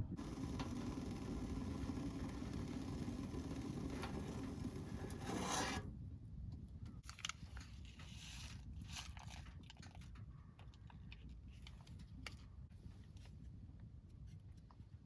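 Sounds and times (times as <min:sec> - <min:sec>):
steady rushing noise: 0:00.0 - 0:05.4
clicks of small objects handled: 0:07.0 - 0:12.5.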